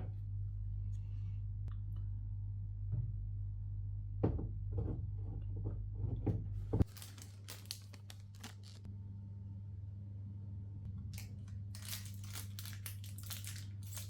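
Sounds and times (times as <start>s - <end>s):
low hum: 0.0s - 14.0s
packing crinkling and tearing: 6.8s - 8.9s, 11.1s - 14.0s.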